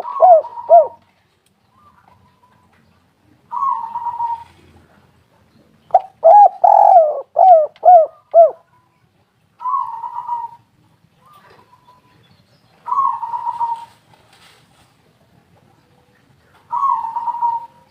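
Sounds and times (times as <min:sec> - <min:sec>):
dove cooing: 0:00.0 - 0:01.0, 0:03.5 - 0:05.0, 0:05.9 - 0:08.7, 0:09.6 - 0:11.9, 0:12.8 - 0:14.0, 0:16.7 - 0:17.9.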